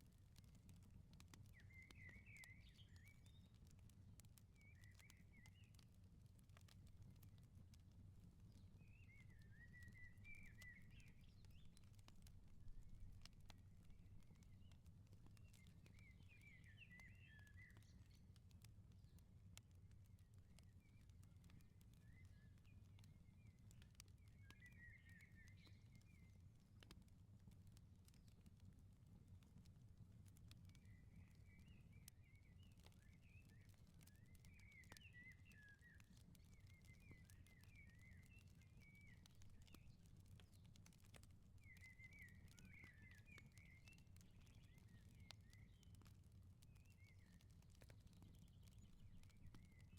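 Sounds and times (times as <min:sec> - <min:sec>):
wood fire crackling: 0:00.0 - 0:49.9
faint bird chirping: 0:01.4 - 0:03.6, 0:08.4 - 0:18.4, 0:20.5 - 0:26.4, 0:30.7 - 0:49.9.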